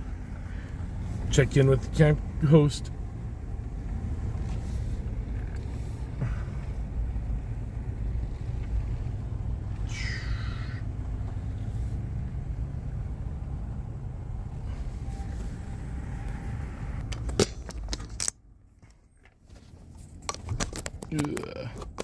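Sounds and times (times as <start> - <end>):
vehicle engine low rumble: 0.0 - 22.0
handling noise: 17.0 - 22.0.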